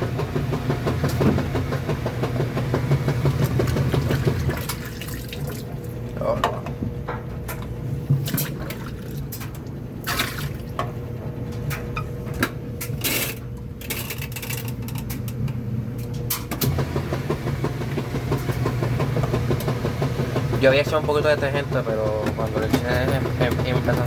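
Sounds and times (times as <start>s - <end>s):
washing machine drum spinning: 0.0s - 24.0s
washing machine running: 0.0s - 24.0s
water sloshing in tub: 2.6s - 7.0s, 7.8s - 11.2s.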